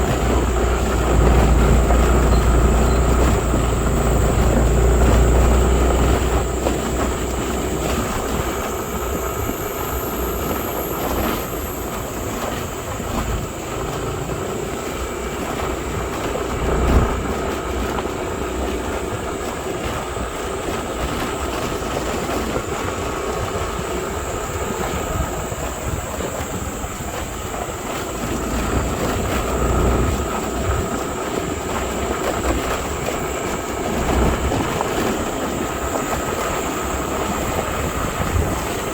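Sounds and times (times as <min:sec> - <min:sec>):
high hiss: 0:00.0 - 0:18.8
vehicle running rumble: 0:00.0 - 0:38.9.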